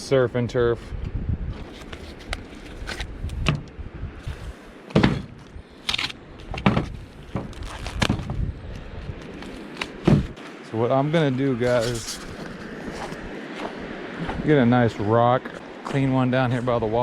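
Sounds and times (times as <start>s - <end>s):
knocks and clunks: 4.9s - 5.5s, 6.5s - 8.4s, 10.0s - 10.4s.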